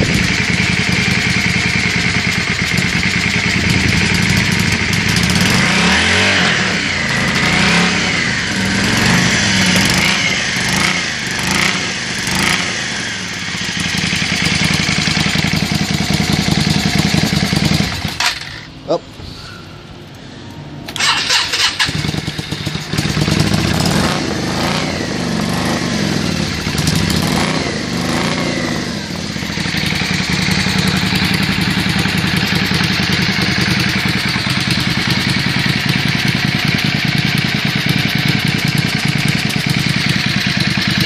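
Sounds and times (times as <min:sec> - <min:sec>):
motorcycle engine revving and idling: 0:00.0 - 0:18.8, 0:20.8 - 0:41.0
motorcycle starter cranking: 0:20.8 - 0:23.9.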